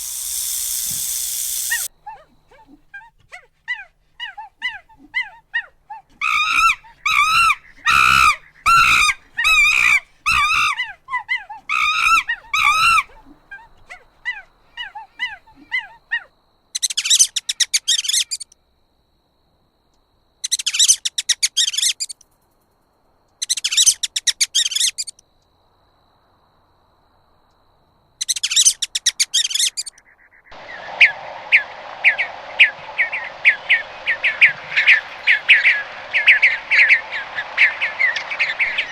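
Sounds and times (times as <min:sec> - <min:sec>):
high buzzy bursts: 0:00.0 - 0:01.9
rapid sharp chirps: 0:00.0 - 0:01.9, 0:30.5 - 0:38.9
steady hiss: 0:00.0 - 0:01.9, 0:30.5 - 0:38.9.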